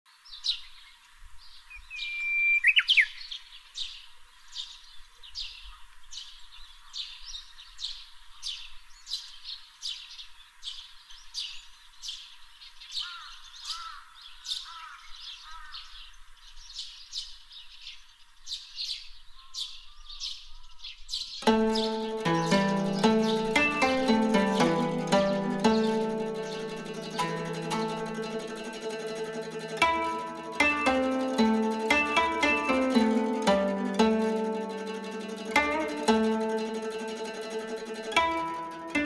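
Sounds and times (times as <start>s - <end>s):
warbler whistled song: 0.2s - 28.5s
short high bird chirps: 1.7s - 3.4s.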